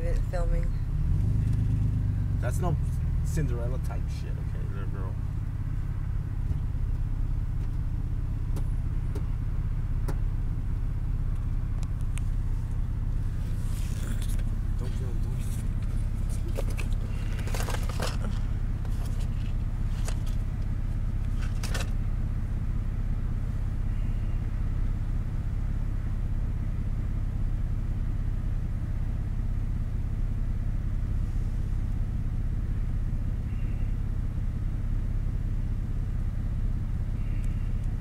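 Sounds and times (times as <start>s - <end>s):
car engine running: 0.0s - 38.0s
rustling: 12.3s - 22.0s.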